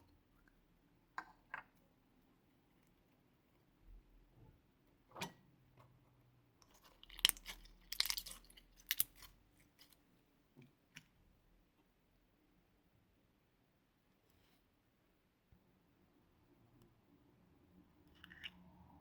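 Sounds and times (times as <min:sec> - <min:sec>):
slime squishing and crackling: 0:06.6 - 0:10.0.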